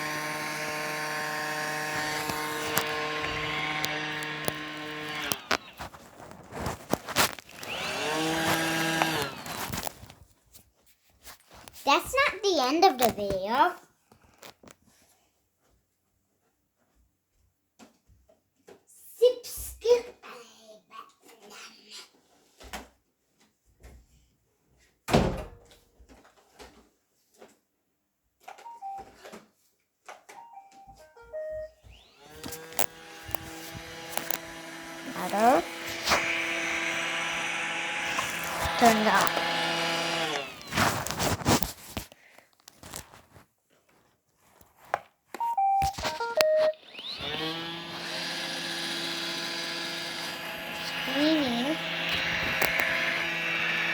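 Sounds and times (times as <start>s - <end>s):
robot vacuum clicks: 0.0s - 10.1s, 32.4s - 41.7s, 45.4s - 53.9s
vacuum motor whining and humming: 0.0s - 10.1s, 31.8s - 42.0s, 45.8s - 53.9s
electronic beeping tune: 45.4s - 46.9s.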